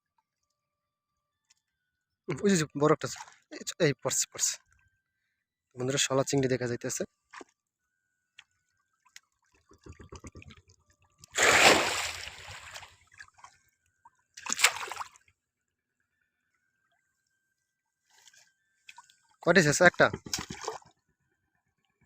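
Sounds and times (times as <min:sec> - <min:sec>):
water dripping: 0:09.4 - 0:12.8
water splashing: 0:09.4 - 0:13.6, 0:14.4 - 0:15.2, 0:18.9 - 0:20.9.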